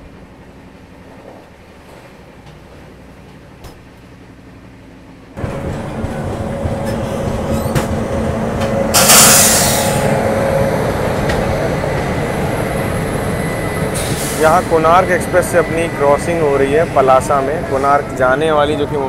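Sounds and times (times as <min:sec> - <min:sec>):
train track noise: 0:00.0 - 0:19.0
loud hissing surge: 0:08.8 - 0:18.5.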